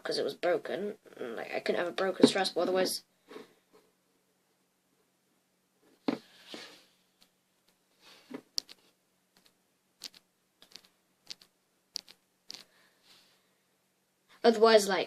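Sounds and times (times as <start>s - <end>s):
small objects clicking and tapping: 8.4s - 12.7s.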